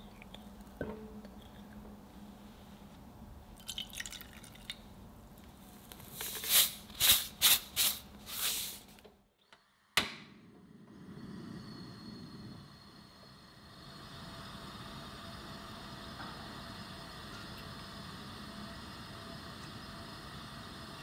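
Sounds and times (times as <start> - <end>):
liquid pouring into a saucepan: 3.6 - 4.8.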